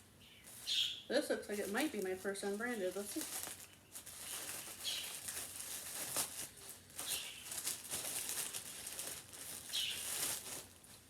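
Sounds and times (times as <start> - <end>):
plastic bag and clothing rustling: 0.4 - 11.0.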